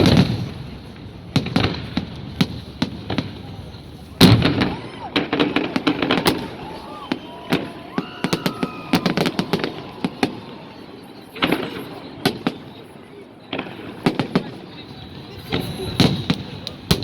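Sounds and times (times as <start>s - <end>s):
firework bangs and crackling pops: 0.0s - 17.0s.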